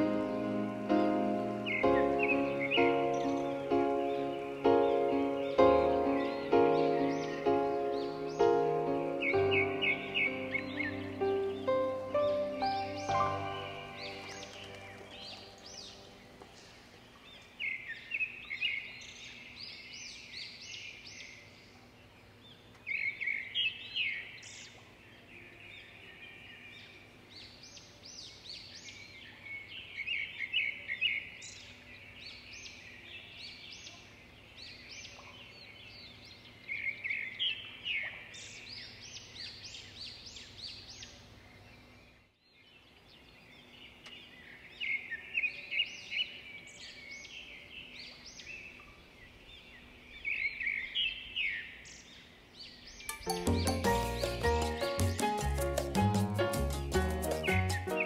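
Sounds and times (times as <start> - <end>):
birds chirping high notes: 0.0 - 21.5, 43.6 - 58.0.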